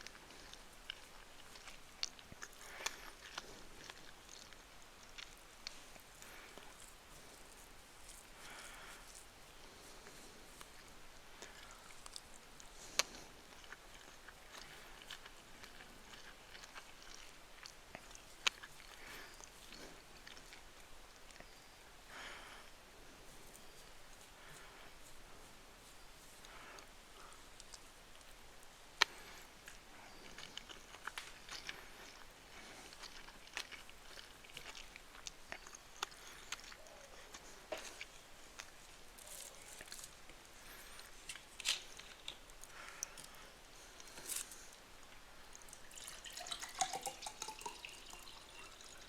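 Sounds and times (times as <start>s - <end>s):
person chewing food: 0.0s - 25.2s, 26.3s - 49.0s.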